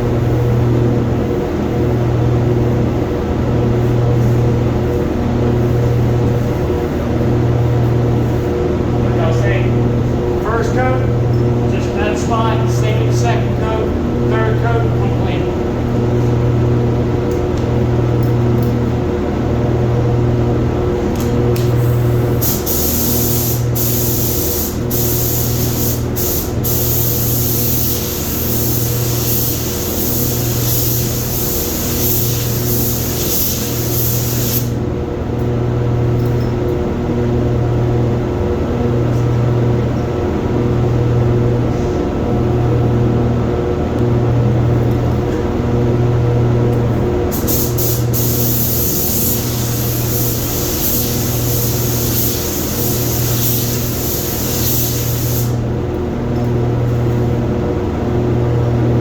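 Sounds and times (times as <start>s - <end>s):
low pulsing machine hum: 0.0s - 59.0s
paint spray gun hissing: 21.8s - 34.7s, 47.3s - 55.6s.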